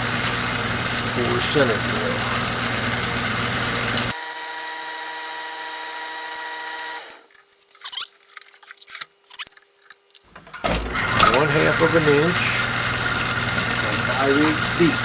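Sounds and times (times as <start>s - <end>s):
lathe cutting noise: 0.0s - 7.3s, 10.4s - 15.0s
machine hum: 0.0s - 7.4s, 10.3s - 15.0s.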